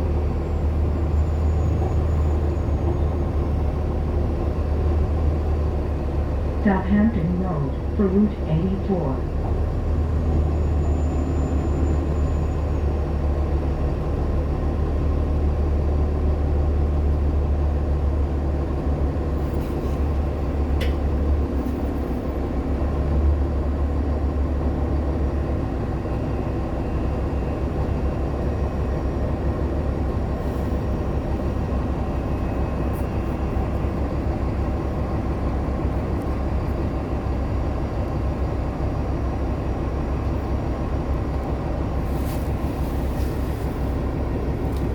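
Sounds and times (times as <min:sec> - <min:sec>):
bus drivetrain and road rumble: 0:00.0 - 0:44.9.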